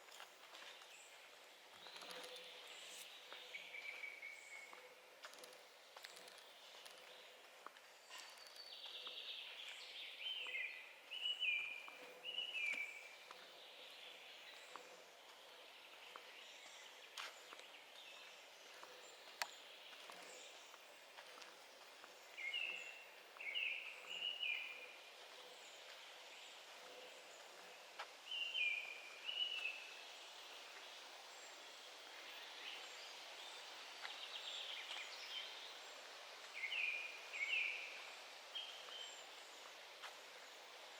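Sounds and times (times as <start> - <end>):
faint steady hiss: 0.0 - 40.9
songbird singing: 0.0 - 40.9.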